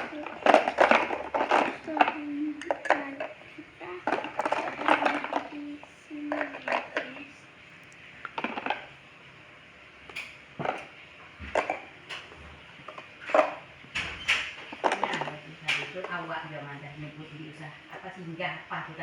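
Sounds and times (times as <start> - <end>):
toy dishes clinking: 0.0 - 7.3, 10.1 - 12.3, 12.9 - 16.2.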